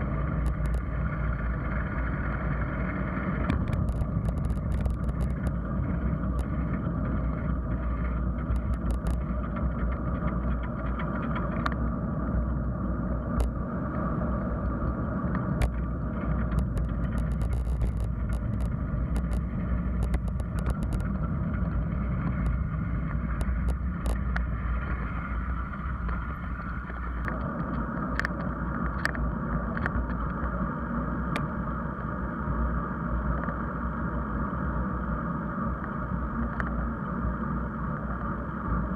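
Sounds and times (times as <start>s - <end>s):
road rumble: 0.0s - 38.9s
wind noise: 0.0s - 38.9s
bicycle clicks and rattles: 3.5s - 5.6s, 8.5s - 11.8s, 16.4s - 21.7s.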